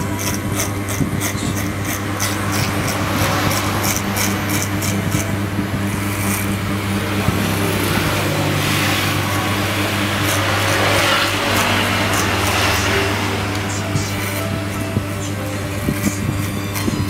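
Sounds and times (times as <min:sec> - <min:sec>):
electric hair clipper buzzing: 0:00.0 - 0:17.0.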